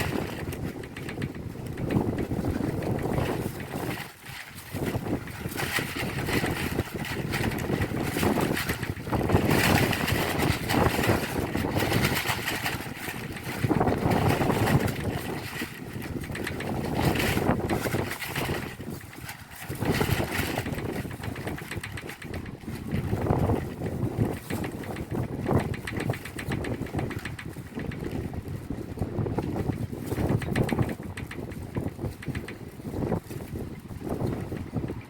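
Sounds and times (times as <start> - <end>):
heavy rain on roof tiles: 0.0 - 21.3
strong wind gusts: 0.0 - 35.0.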